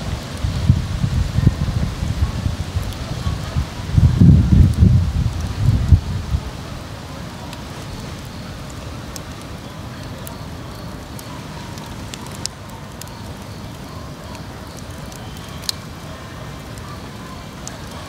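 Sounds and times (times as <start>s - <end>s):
low fire rumble: 0.0s - 18.0s
wood fire crackling: 0.0s - 18.0s.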